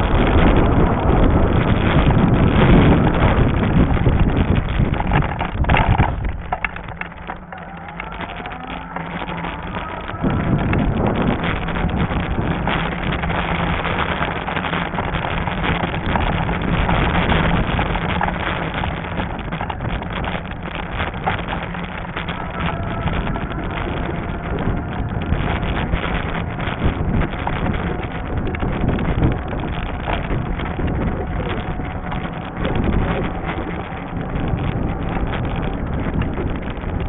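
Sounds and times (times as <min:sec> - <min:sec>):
low rumble of bike ride: 0:00.0 - 0:37.0
wind buffeting microphone: 0:00.0 - 0:37.0.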